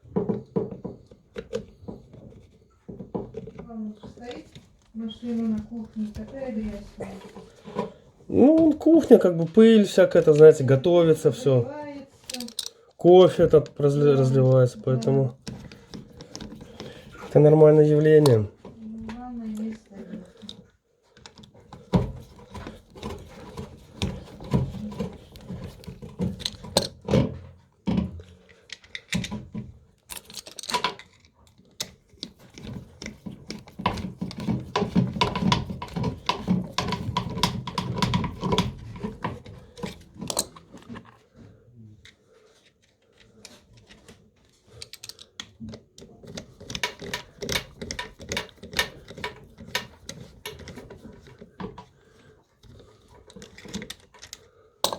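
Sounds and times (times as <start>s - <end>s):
tools clicking and knocking on panels: 0.0s - 8.0s, 18.2s - 41.2s, 43.5s - 54.9s.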